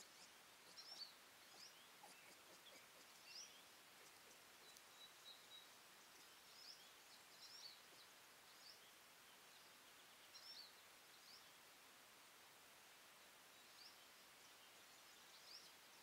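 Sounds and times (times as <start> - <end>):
faint distant birdsong: 0.0 - 16.0
steady hiss: 0.0 - 16.0.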